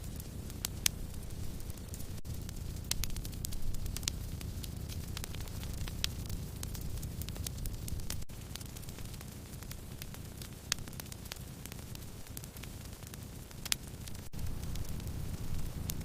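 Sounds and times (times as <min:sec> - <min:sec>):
sharp pops of fire: 0:00.0 - 0:16.0
wood fire crackling: 0:00.0 - 0:16.0.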